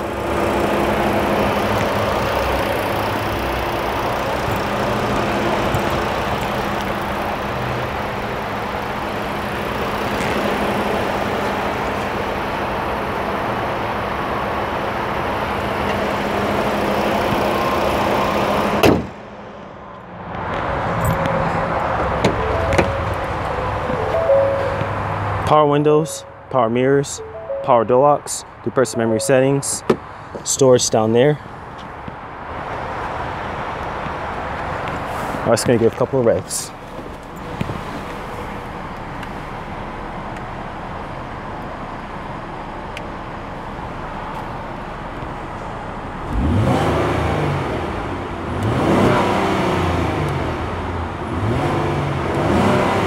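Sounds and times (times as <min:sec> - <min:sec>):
car engine idling: 0:00.0 - 0:19.8, 0:20.9 - 0:27.9
car hood slamming: 0:18.8 - 0:19.2.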